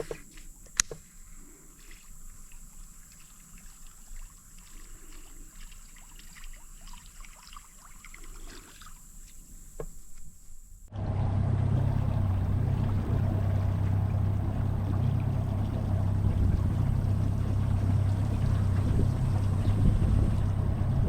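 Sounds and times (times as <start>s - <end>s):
small clicks: 0.0s - 1.1s
water trickling: 1.4s - 9.9s, 11.0s - 21.0s
boat engine droning: 10.9s - 21.0s.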